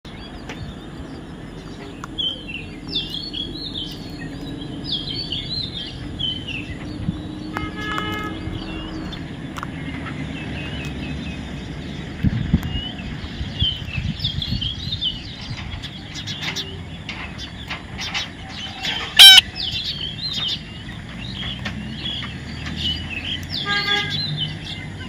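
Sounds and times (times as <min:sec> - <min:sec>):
birds chirping: 0:00.0 - 0:25.0
short horn-like tone: 0:19.2 - 0:19.4.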